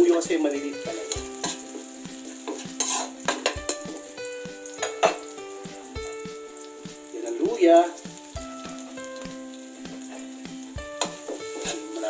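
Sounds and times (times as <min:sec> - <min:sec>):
garlic sizzling in oil: 0:00.0 - 0:12.0
metal spatula scraping a wok: 0:00.9 - 0:04.1, 0:10.0 - 0:12.0.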